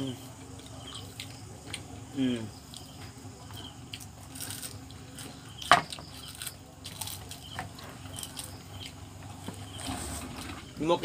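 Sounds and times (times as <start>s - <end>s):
crab shells crackling and crunching: 2.6s - 9.9s
person chewing: 2.6s - 10.4s.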